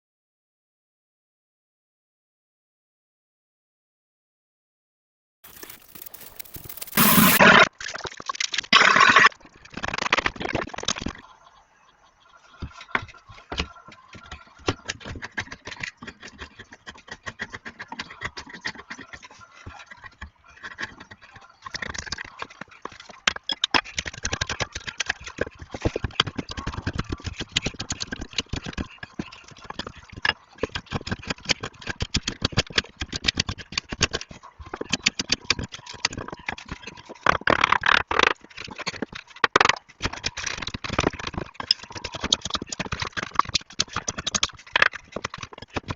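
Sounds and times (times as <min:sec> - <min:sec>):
clattering and scraping: 0:05.5 - 0:07.7.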